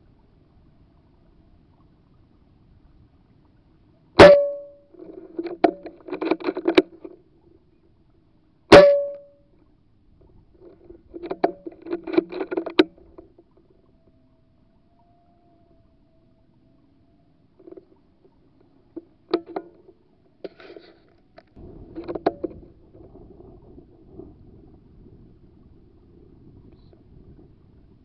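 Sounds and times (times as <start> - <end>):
short ringing tone: 4.2 - 4.8, 8.7 - 9.4.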